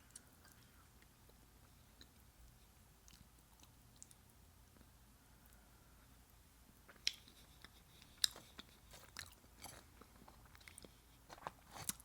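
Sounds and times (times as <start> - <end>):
person chewing and crunching food: 6.8 - 12.0.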